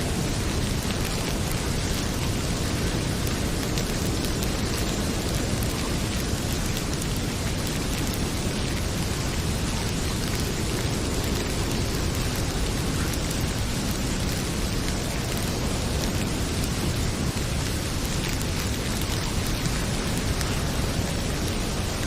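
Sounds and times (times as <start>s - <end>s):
heavy rain pouring: 0.0s - 22.0s
wood fire crackling: 0.0s - 22.0s.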